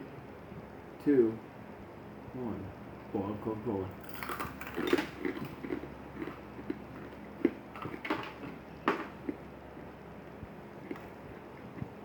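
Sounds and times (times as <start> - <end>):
crunching hard candy: 4.0 - 9.9.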